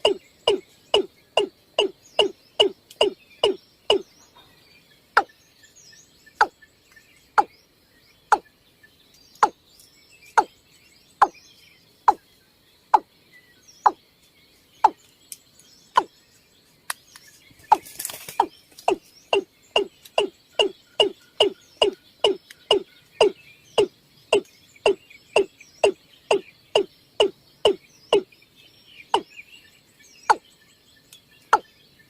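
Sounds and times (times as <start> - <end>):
bird calling with falling notes: 0.0 - 4.6, 14.6 - 32.0
faint high chirps: 0.0 - 32.0.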